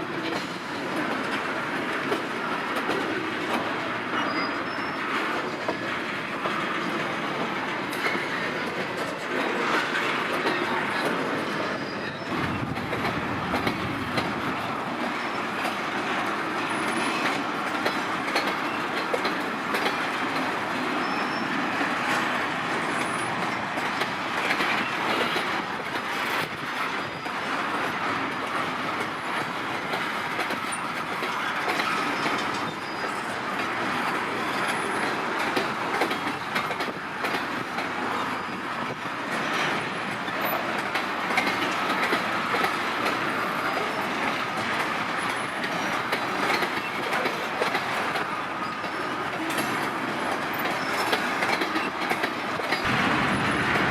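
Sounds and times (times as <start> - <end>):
train wheels clattering: 0.0 - 53.9
faint wheel squeal: 4.2 - 5.8, 11.5 - 12.4, 21.0 - 21.5, 31.9 - 33.3.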